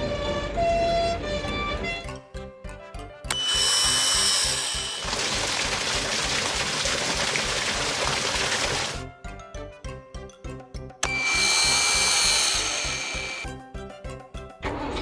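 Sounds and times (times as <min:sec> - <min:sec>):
cartoon background music: 0:00.0 - 0:05.1, 0:09.0 - 0:15.0.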